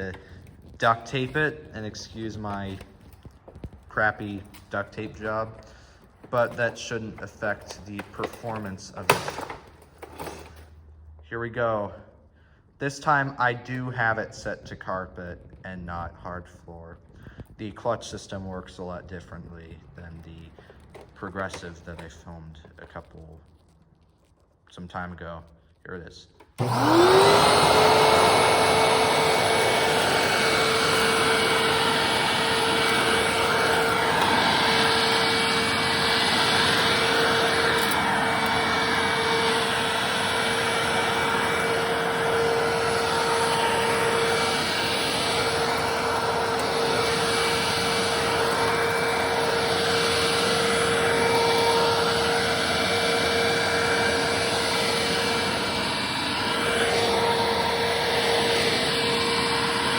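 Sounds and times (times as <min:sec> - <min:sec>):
upright vacuum cleaner running: 0:00.0 - 0:10.7, 0:20.3 - 0:22.2, 0:26.4 - 0:59.9.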